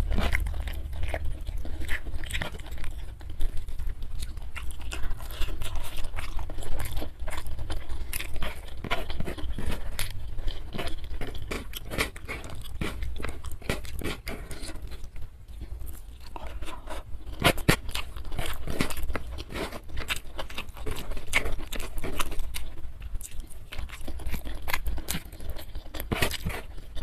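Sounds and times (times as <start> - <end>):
chewing with crunches: 0.0 - 27.0
fingers working rice on tray: 4.3 - 15.0.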